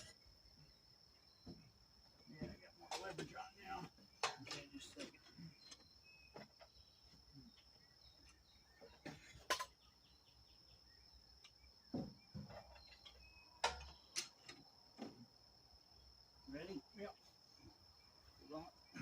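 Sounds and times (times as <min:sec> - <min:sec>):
insect drone: 0:00.0 - 0:19.0
hand tools clicking and knocking: 0:02.4 - 0:03.4, 0:04.2 - 0:05.8, 0:12.4 - 0:14.7.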